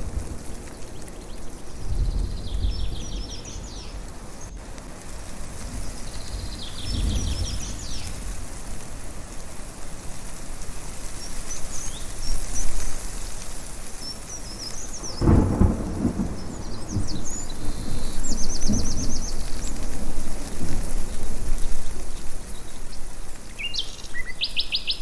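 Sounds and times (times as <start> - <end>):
thunder rumbling: 0.0 - 9.2, 14.4 - 23.1
wind and rain rushing: 0.0 - 25.0
small birds chirping: 0.1 - 4.6, 5.5 - 8.4, 10.9 - 25.0.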